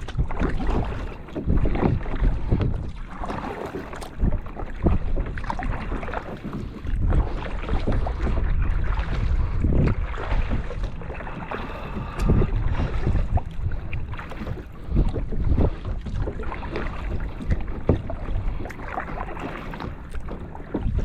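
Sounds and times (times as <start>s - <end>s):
kayak paddle splashing in water: 0.0s - 21.0s
wind buffeting microphone: 0.0s - 21.0s.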